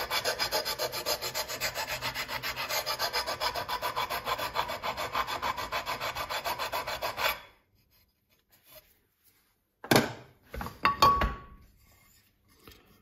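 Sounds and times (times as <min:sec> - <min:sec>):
hand tool filing back and forth: 0:00.0 - 0:08.1.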